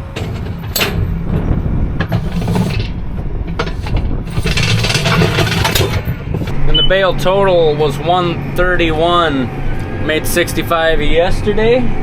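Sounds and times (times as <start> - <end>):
baler clattering and clicking: 0.0 - 6.9
tractor engine running: 0.0 - 11.2.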